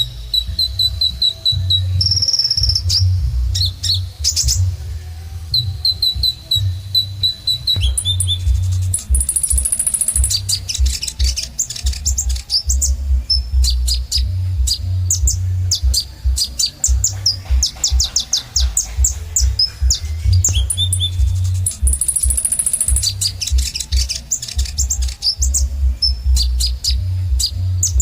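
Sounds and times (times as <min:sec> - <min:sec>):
sunbird chirps and trills: 0:00.0 - 0:28.0
low broken rumble: 0:01.6 - 0:22.4.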